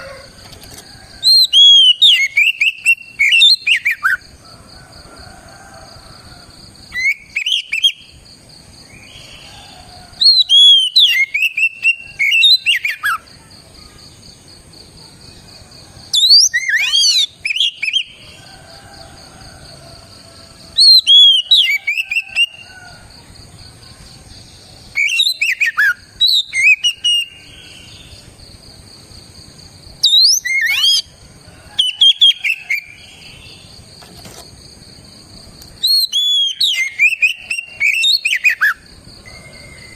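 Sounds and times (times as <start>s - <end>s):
bird singing whistled notes: 1.2s - 4.2s, 6.9s - 8.1s, 10.2s - 13.2s, 16.1s - 18.2s, 20.8s - 22.6s, 24.9s - 28.1s, 30.0s - 31.1s, 31.8s - 33.0s, 35.8s - 39.9s.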